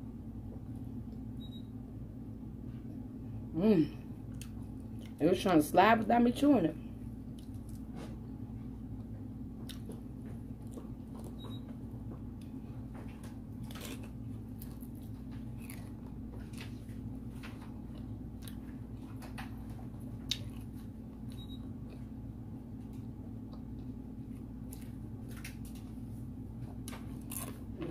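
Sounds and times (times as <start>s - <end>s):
steady low hum: 0.0s - 27.9s
chewing food: 4.3s - 5.2s, 7.2s - 7.9s, 8.6s - 26.0s, 26.6s - 27.9s.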